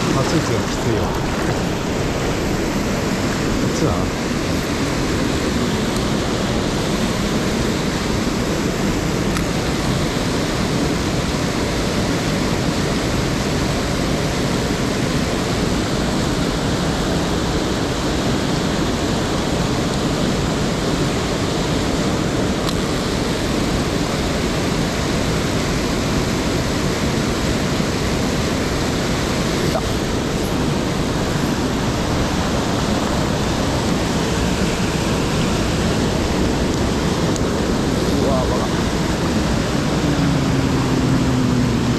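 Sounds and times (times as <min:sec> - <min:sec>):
stream water rushing: 0:00.0 - 0:41.9.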